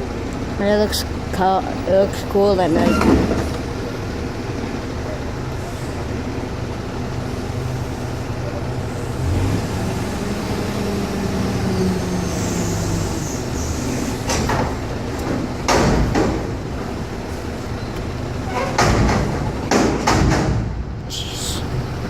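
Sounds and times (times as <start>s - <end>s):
loud metallic clanks and rattles: 13.9s - 17.2s, 18.2s - 21.0s.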